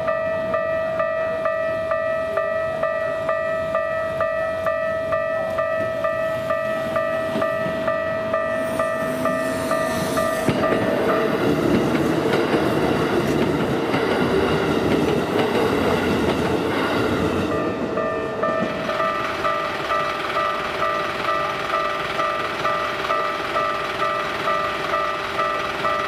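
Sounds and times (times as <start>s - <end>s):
level-crossing bell clanging: 0.0s - 16.1s, 17.4s - 26.0s
electric train running past: 0.0s - 26.0s.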